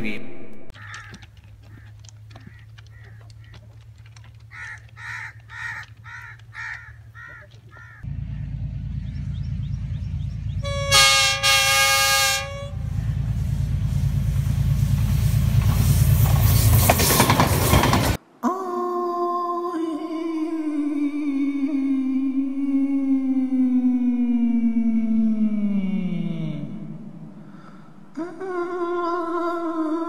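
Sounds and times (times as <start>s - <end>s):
birds calling: 0.7s - 13.8s
train rumbling: 0.8s - 18.2s
train horn: 10.6s - 13.1s.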